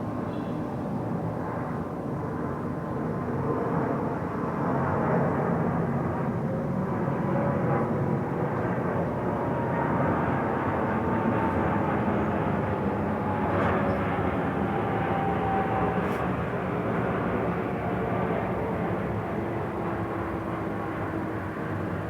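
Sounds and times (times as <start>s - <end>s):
faint high engine whine: 6.3s - 22.0s
jet engines roaring: 9.3s - 22.0s.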